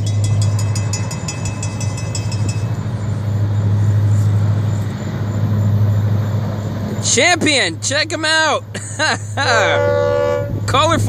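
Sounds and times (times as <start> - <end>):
rapidly ringing bell: 0.0 - 3.0
diesel locomotives passing: 0.0 - 11.0.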